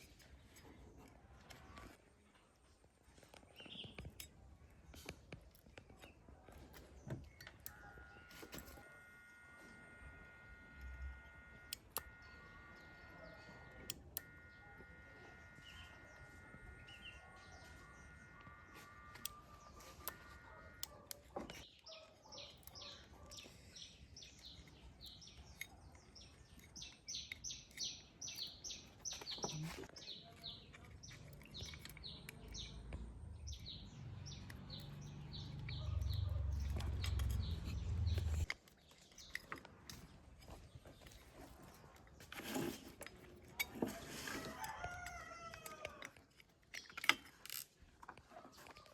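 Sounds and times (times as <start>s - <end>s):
small birds chirping: 0.0s - 48.9s
faint high whine: 7.8s - 20.6s.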